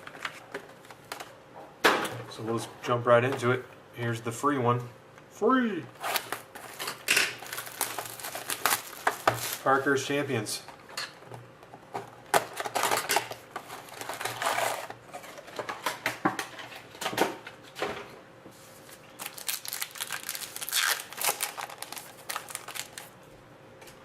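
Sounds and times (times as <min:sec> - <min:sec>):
wrappers crinkling and tearing: 0:06.0 - 0:09.9, 0:12.3 - 0:14.9, 0:19.2 - 0:23.2.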